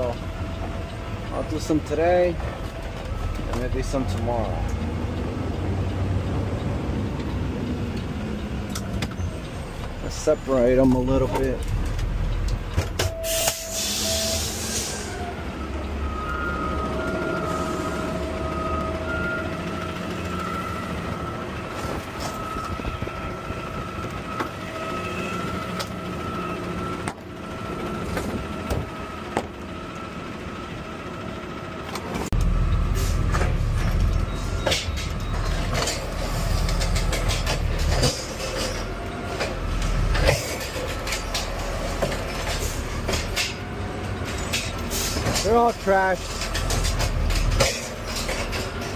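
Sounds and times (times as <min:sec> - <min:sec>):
diesel engine running: 0:00.0 - 0:48.9
hydraulic whine: 0:13.0 - 0:30.3.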